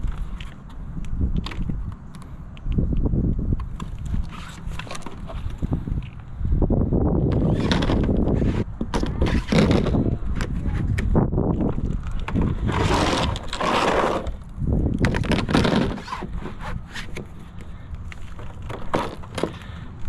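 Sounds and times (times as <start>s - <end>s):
scraping: 7.2s - 19.8s.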